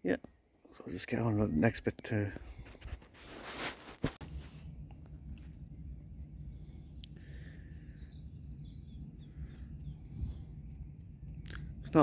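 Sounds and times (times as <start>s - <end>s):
low rumble: 4.2s - 12.0s
faint bird chirps: 4.6s - 12.0s.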